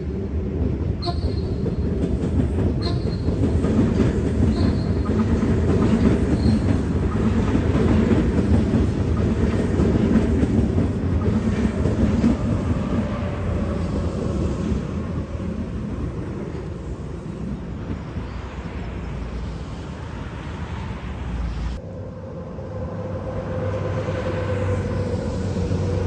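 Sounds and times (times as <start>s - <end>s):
heavy vehicle rumbling past: 20.5s - 26.0s.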